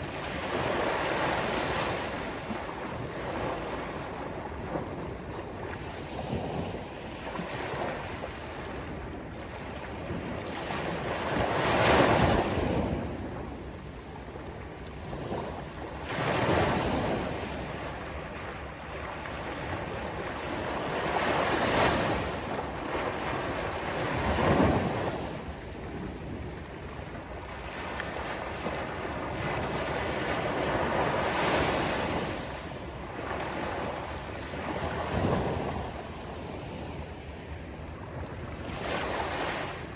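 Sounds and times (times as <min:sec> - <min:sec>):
waves breaking on a beach: 0:00.0 - 0:39.9.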